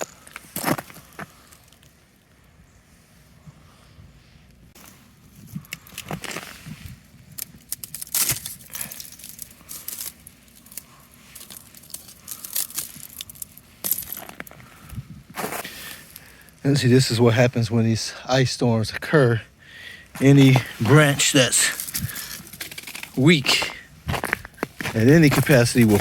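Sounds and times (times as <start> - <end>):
ice crunching and crackling: 0.0 - 2.0, 4.8 - 17.0, 20.0 - 26.0.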